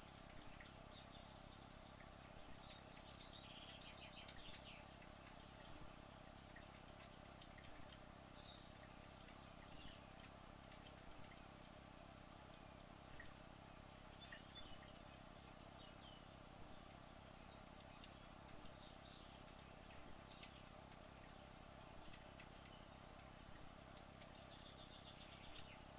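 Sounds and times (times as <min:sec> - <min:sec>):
faint background hiss and hum: 0:00.0 - 0:25.9
faint high chirps and ticks: 0:00.0 - 0:25.9.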